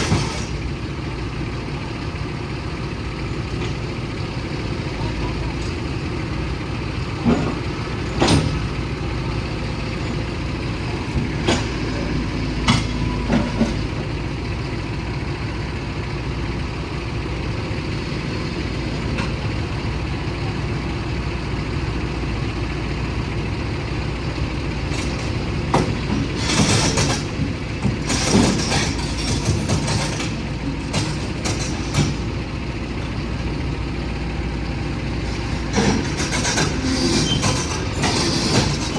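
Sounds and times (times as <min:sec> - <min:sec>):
heavy diesel engine running: 0:00.0 - 0:38.9
short hissing or clattering bursts: 0:25.9 - 0:32.2, 0:35.2 - 0:38.9.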